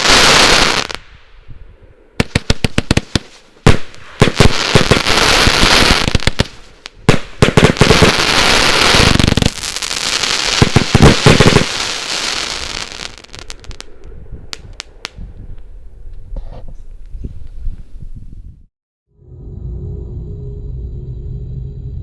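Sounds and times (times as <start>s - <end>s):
fireworks firing rapid shots: 2.2s - 13.6s.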